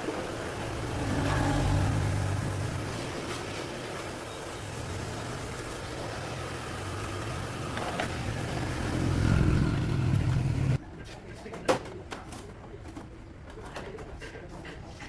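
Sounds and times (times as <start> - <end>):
vehicle engine rumble: 0.0 - 10.8.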